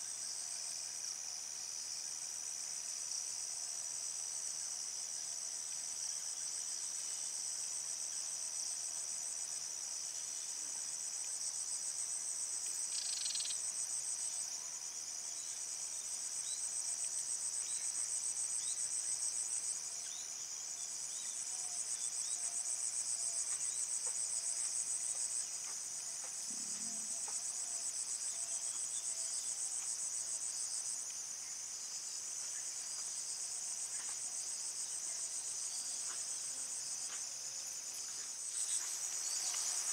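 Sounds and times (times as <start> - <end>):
crickets trilling: 9.5 - 39.9.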